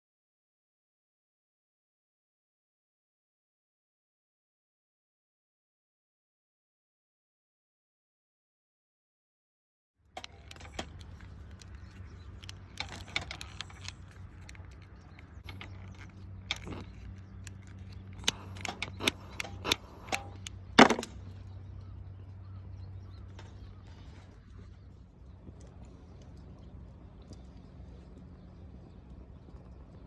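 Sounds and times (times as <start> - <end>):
steady low hum: 10.1 - 30.0
gear clinking and clattering: 10.2 - 21.4.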